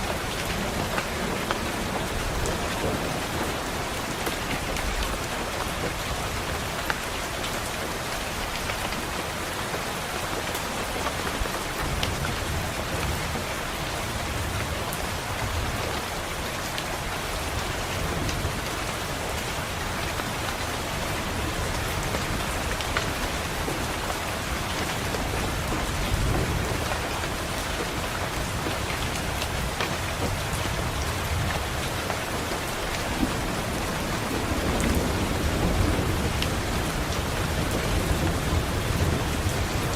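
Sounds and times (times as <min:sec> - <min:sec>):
distant thunder rumbling: 0:00.0 - 0:06.0, 0:21.3 - 0:39.9
rain pattering on window: 0:00.0 - 0:39.9.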